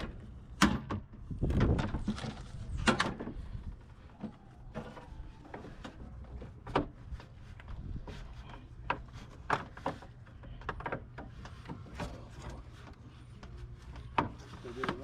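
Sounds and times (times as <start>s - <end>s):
knocks and clanks on a car: 0.0s - 2.2s.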